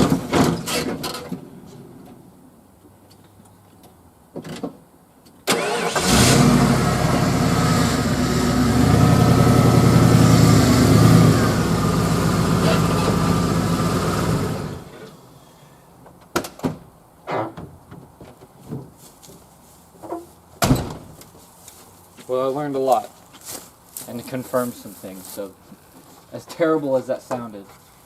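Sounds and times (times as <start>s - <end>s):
pickup engine starting and revving: 5.5s - 15.1s.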